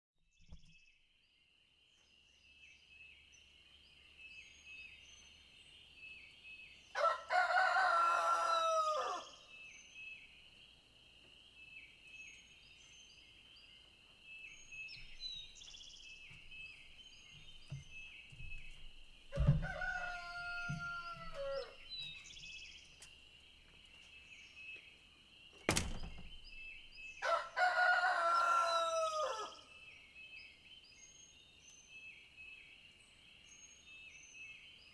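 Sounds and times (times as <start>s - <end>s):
rooster crowing: 7.0s - 9.4s, 19.3s - 21.9s, 27.2s - 29.7s.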